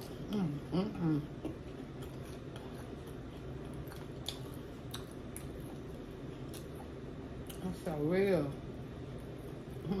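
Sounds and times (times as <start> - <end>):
chewing fried potato: 0.0 - 7.8.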